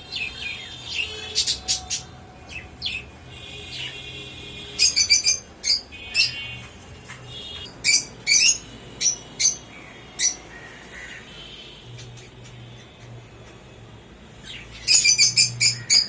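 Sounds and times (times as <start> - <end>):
bird squawks and chirps: 0.1 - 11.4, 14.5 - 16.0.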